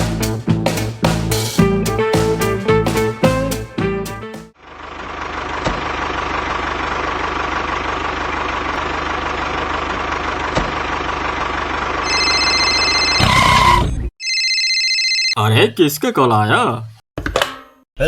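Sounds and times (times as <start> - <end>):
tractor engine idling: 4.6 - 13.2
phone ringing: 12.0 - 15.4.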